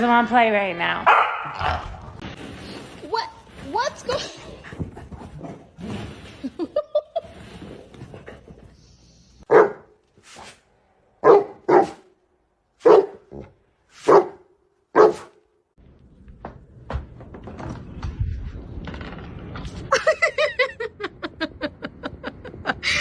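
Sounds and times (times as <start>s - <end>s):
dog barking: 1.1s - 1.8s, 9.5s - 10.0s, 11.2s - 12.1s, 12.8s - 15.4s.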